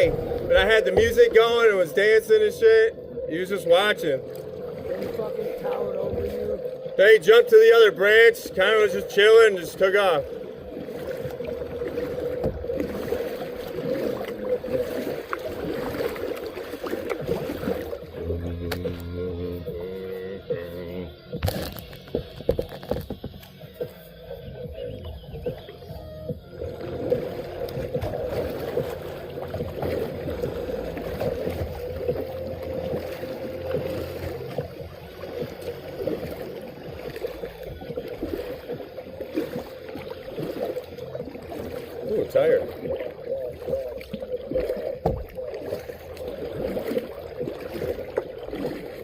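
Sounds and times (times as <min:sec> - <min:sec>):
paddle noise: 0:00.0 - 0:49.0
water drips and splashes: 0:00.0 - 0:49.0
water sloshing around a kayak: 0:00.0 - 0:49.0.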